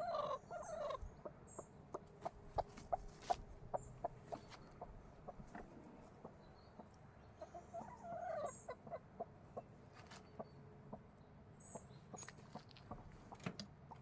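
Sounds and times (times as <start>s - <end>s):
chicken drawn-out call: 0.0s - 1.1s
chickens clucking: 0.0s - 14.0s.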